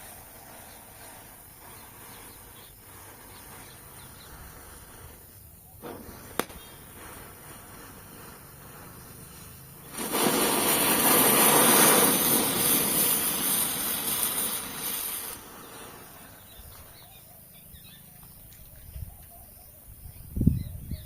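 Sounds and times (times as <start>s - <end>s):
spinner firecracker hissing: 0.0s - 19.0s.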